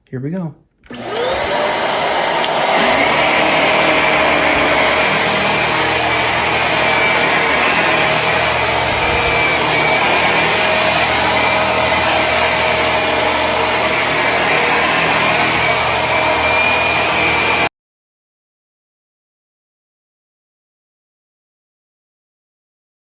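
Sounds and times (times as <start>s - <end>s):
vacuum cleaner running: 0.9s - 17.7s.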